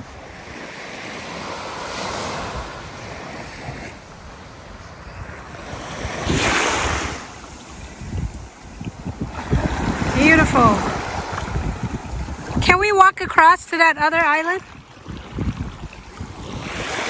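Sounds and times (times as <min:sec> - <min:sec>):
surf washing onto beach: 0:00.0 - 0:17.0
wind buffeting microphone: 0:01.3 - 0:17.0.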